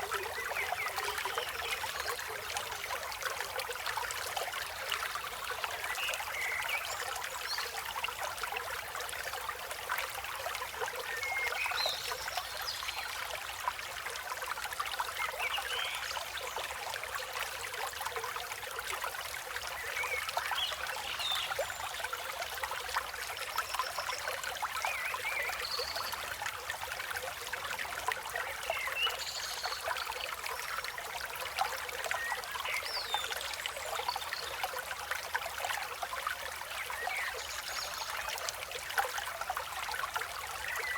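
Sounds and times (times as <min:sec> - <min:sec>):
river water flowing over rocks: 0:00.0 - 0:12.1.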